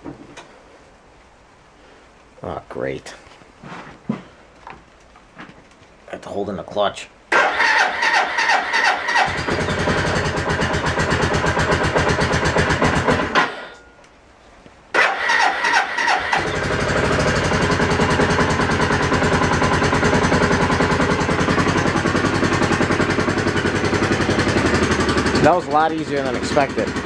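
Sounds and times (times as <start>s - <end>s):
motorcycle engine starting and idling: 7.3s - 13.9s, 14.9s - 27.0s.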